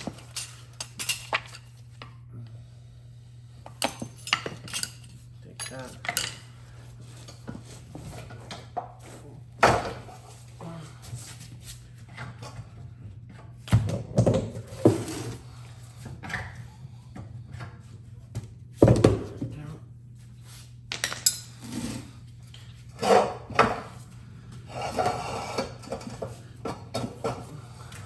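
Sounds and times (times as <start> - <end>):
metal parts clinking and knocking: 0.0 - 1.7, 3.8 - 6.4, 20.9 - 21.5.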